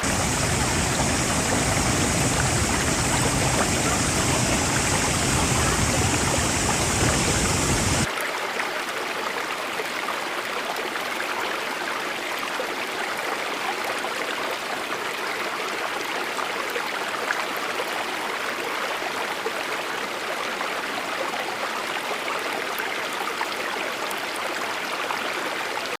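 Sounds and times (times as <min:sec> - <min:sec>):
waterfall rushing: 0:00.0 - 0:08.1.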